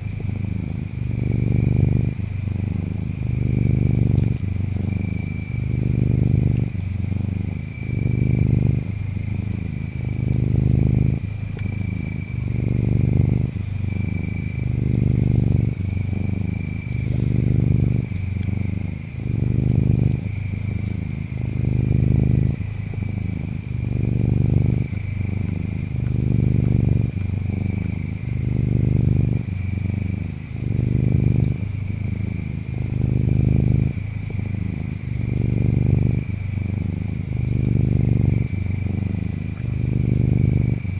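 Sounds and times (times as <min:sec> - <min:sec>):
cat purring: 0:00.0 - 0:40.9
insect chirping and trills: 0:00.0 - 0:40.9.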